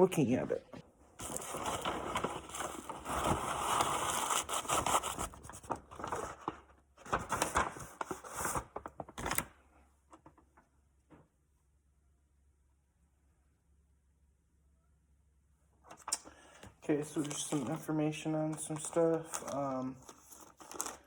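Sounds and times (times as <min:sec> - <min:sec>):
packaging tearing and crinkling: 0:01.2 - 0:09.5, 0:18.6 - 0:21.0.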